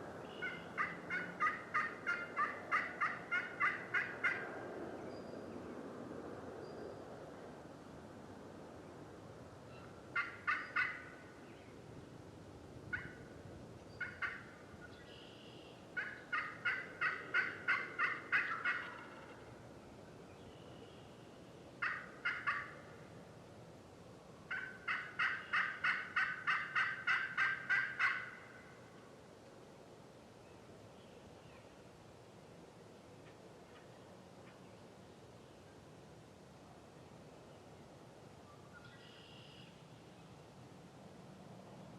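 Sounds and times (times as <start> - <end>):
turkey yelping: 0.4 - 4.4, 9.8 - 11.1, 14.0 - 14.4, 16.0 - 19.4, 21.8 - 22.8, 24.5 - 28.5.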